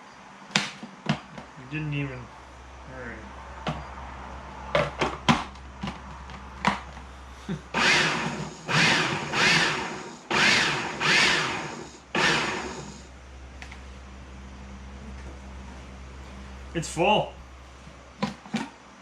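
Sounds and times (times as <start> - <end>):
food processor motor bursts: 7.7 - 13.1.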